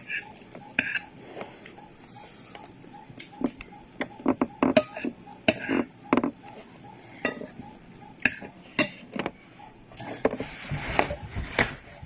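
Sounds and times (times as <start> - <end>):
rustling noise: 10.0 - 12.0.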